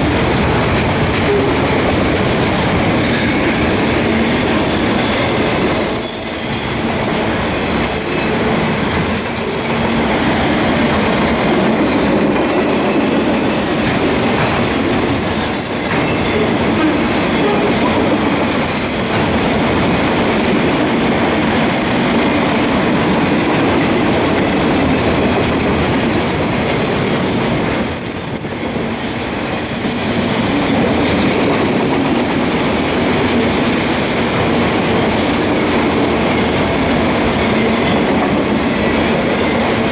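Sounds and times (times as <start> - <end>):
steel wheels rumbling on rail: 0.0 - 39.9
high-pitched wheel squeal: 4.7 - 9.9.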